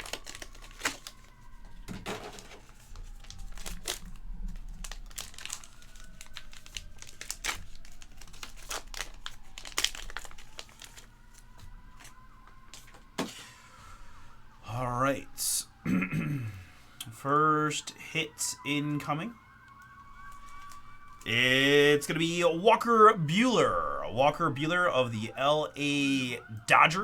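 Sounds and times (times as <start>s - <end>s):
plastic wrapping crinkling and tearing: 0.0s - 13.3s, 19.8s - 22.3s.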